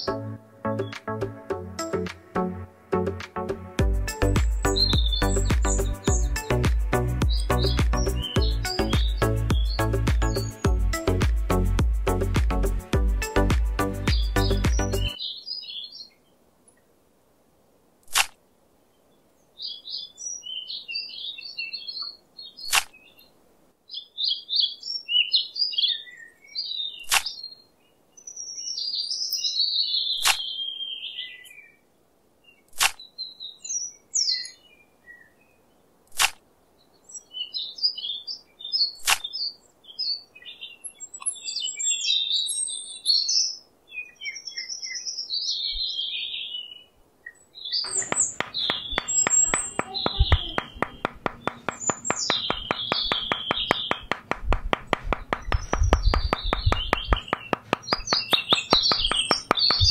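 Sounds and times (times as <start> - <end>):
small birds chirping: 4.1 - 11.2, 13.3 - 16.8, 18.9 - 31.8, 32.4 - 59.9
sharp single clicks: 18.0 - 18.4, 22.7 - 23.0, 27.1 - 27.3, 30.2 - 30.4, 32.7 - 33.0, 36.1 - 36.4, 39.0 - 39.3, 47.9 - 59.9.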